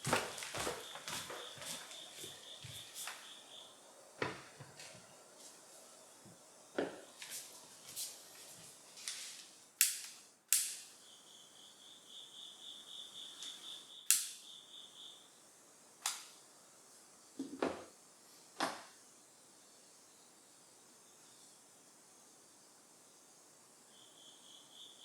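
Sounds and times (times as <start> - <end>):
sharp high clicks: 9.8 - 11.0, 13.4 - 14.5
insect trilling: 11.0 - 15.4.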